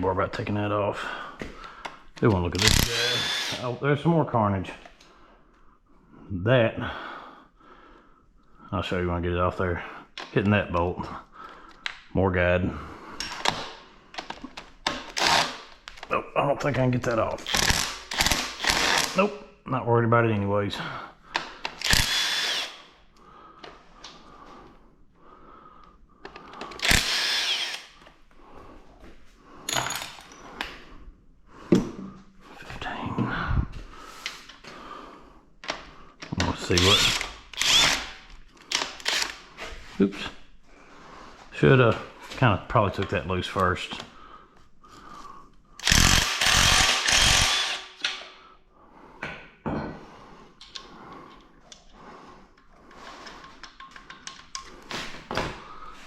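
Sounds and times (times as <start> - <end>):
power drill spinning bolts: 2.5 - 3.7, 13.2 - 16.0, 17.4 - 19.2, 21.6 - 22.9, 26.3 - 27.9, 35.7 - 39.4, 45.8 - 48.3
metallic clicks of tools handled: 52.6 - 54.9.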